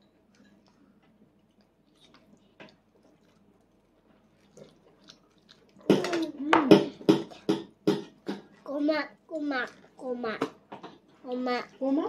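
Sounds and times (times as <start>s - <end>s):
toddler chewing food: 0.2s - 7.5s.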